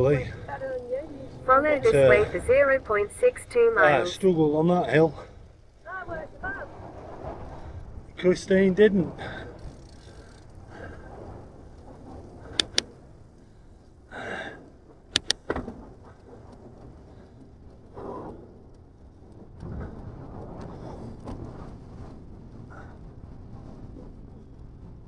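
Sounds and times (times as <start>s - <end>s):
bicycle wheels rolling: 0.0s - 25.0s
wind noise: 0.0s - 25.0s
sharp clicks: 12.4s - 13.5s, 15.1s - 15.6s.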